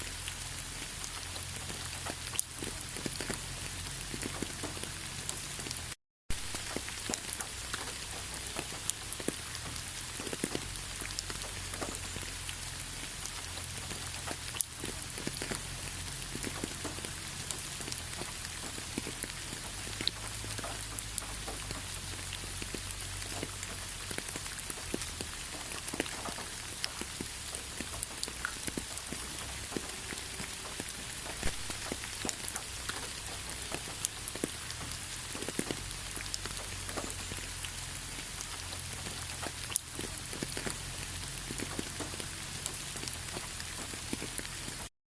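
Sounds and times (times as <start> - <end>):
raindrops ticking on surfaces: 0.0 - 44.9
steady rain hiss: 0.0 - 44.9.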